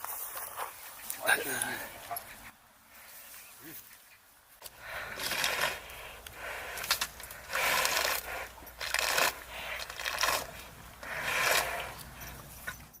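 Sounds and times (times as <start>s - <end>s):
cow slurping water: 4.8s - 12.6s.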